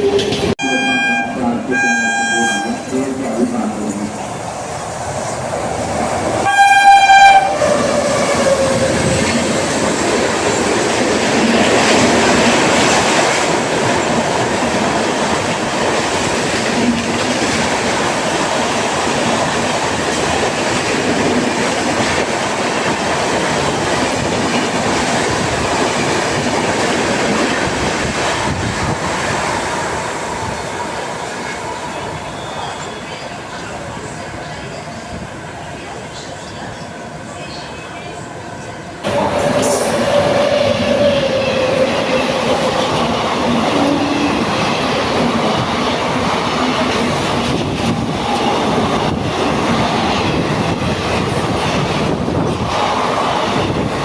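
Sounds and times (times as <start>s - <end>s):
train coaches rumbling past: 0.0s - 54.0s
train horn blast: 0.6s - 2.9s, 6.4s - 9.1s.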